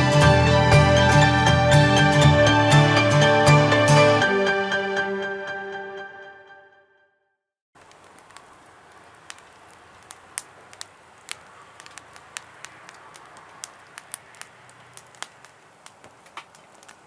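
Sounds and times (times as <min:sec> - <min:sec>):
charcoal fire crackling: 0:07.8 - 0:17.0
faint steady hiss: 0:07.8 - 0:17.0.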